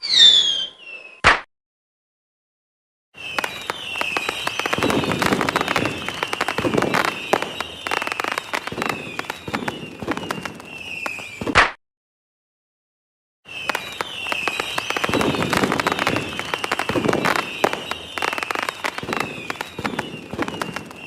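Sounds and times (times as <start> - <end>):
falling whistles: 0.0 - 1.3, 3.2 - 11.6, 13.5 - 21.0
fireworks deep booms: 3.2 - 11.6, 13.5 - 21.0
fireworks crackling and popping: 3.2 - 11.8, 13.5 - 21.0.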